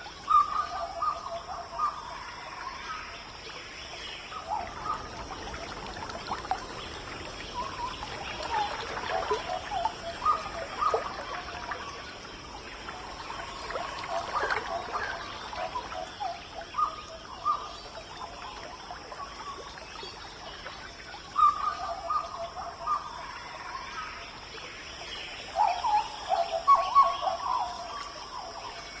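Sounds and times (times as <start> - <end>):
birds calling: 4.2 - 17.7.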